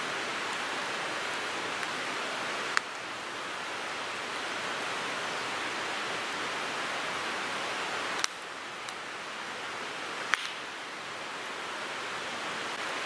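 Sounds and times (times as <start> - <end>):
wood fire crackling: 0.0 - 12.0
sharp pop of fire: 10.3 - 10.6.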